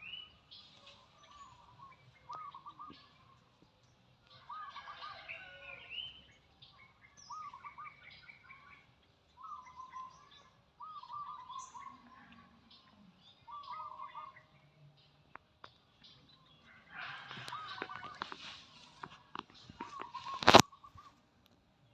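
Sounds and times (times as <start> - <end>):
small birds chirping and singing: 0.0 - 21.2.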